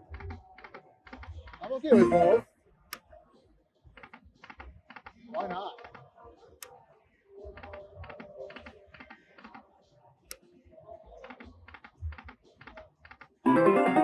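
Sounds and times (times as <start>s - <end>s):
slot machine music: 1.9s - 2.4s, 13.4s - 14.0s.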